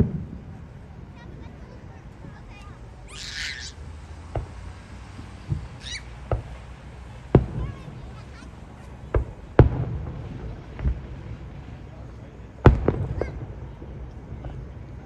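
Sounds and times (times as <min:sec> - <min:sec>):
fireworks booming: 0:00.0 - 0:15.0
high squealing: 0:03.0 - 0:03.9, 0:05.6 - 0:06.3.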